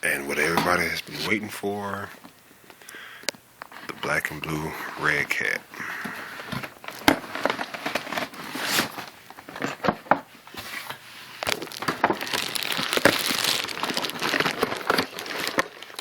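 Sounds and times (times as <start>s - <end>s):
packaging rustling and crinkling: 3.6s - 16.0s.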